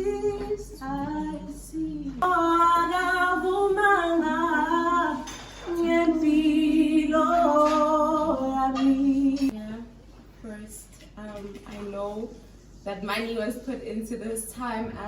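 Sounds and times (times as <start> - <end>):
woman singing a cappella: 0.0 - 9.9.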